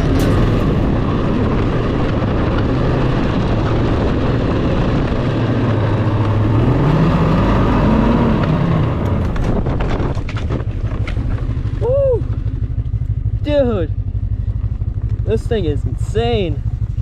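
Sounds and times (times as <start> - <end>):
snowmobile engine revving: 5.3 - 9.3.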